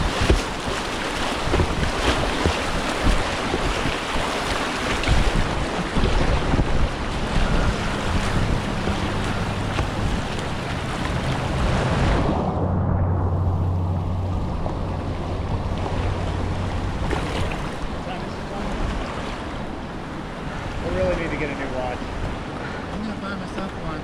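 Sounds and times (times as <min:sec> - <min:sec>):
river water rushing and splashing: 0:00.0 - 0:12.6, 0:13.2 - 0:24.0
wind buffeting microphone: 0:00.0 - 0:23.1
low steady hum: 0:07.1 - 0:20.6.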